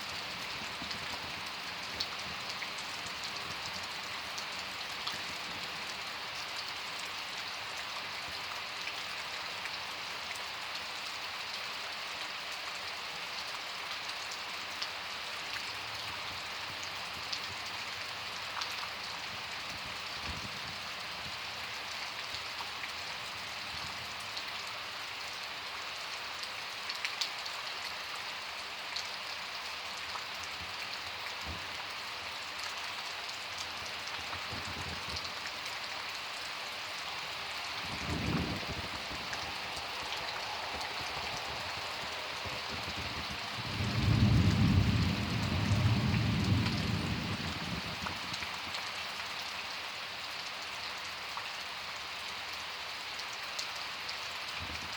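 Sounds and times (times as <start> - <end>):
hiss of rainfall: 0.0 - 54.9.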